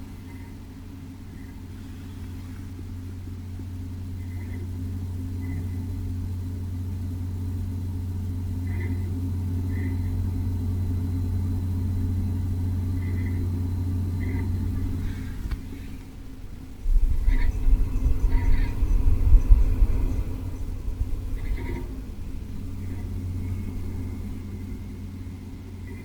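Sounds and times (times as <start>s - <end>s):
cooling fans rattling: 0.0s - 26.0s
low hum: 0.0s - 26.0s
faint chirps: 11.8s - 16.0s.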